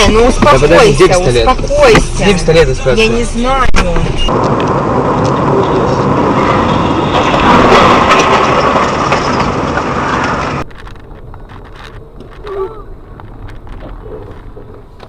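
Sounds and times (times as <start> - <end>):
dense vehicle noise: 0.0 - 15.0
cracks and knocks: 7.0 - 12.5, 13.1 - 15.0.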